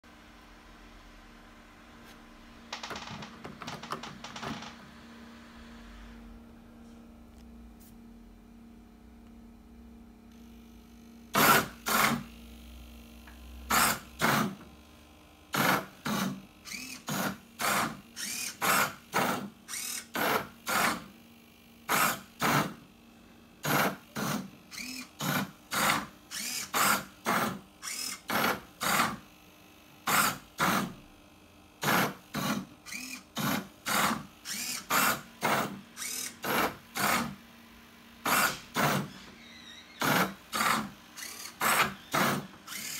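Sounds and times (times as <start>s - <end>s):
stepper motor whirs: 15.5s - 21.1s, 23.6s - 29.2s, 31.8s - 37.4s, 38.2s - 42.9s.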